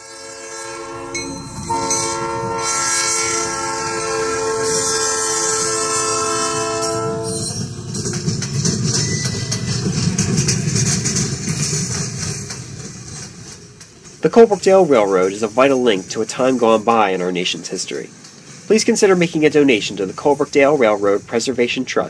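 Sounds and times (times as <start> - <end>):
train horn: 0.0 - 7.6
train wheels clattering on rails: 1.2 - 22.0.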